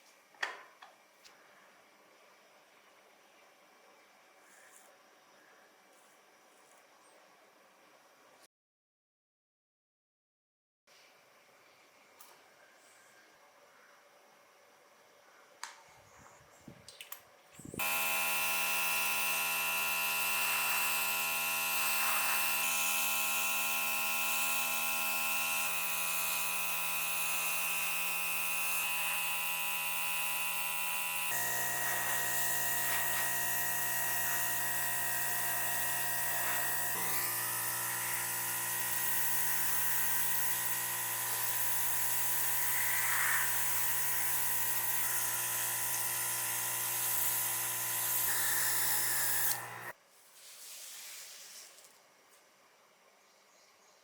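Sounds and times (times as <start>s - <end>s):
electric motor whining: 17.6s - 50.0s.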